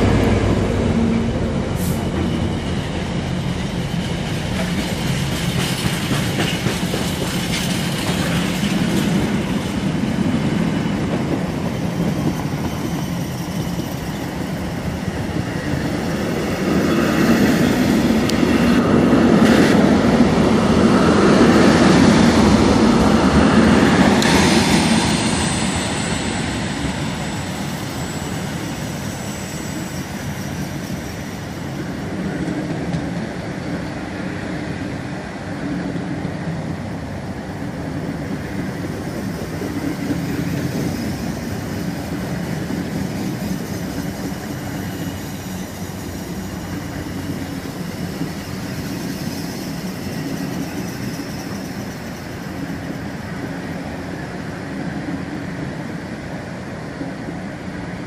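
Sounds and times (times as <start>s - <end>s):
freight train wheels rattling on rail: 0.0s - 58.0s.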